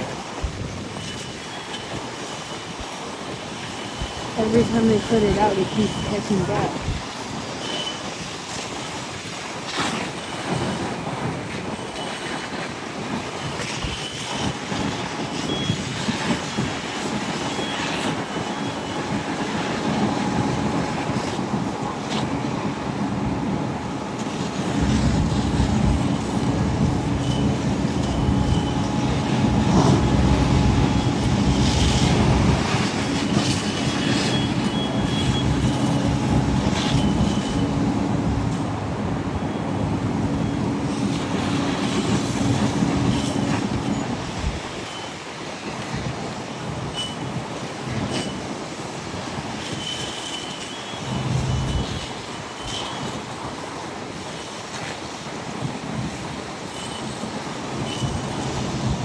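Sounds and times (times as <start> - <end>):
traffic noise: 4.0 - 7.0, 17.4 - 44.6
vehicle engine: 22.2 - 44.2
faint high beeping tones: 25.4 - 41.8.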